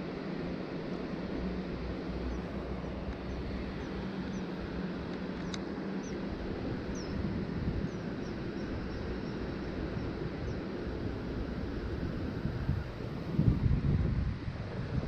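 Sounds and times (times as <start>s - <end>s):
river water rushing: 0.0s - 8.5s
wind: 0.0s - 15.0s
small bird chirping: 5.4s - 6.2s, 6.9s - 7.2s.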